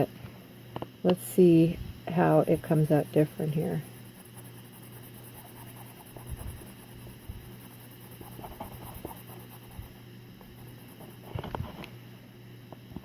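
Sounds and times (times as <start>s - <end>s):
steady low hum: 0.0s - 13.0s
pencil scratching on paper: 2.3s - 11.5s.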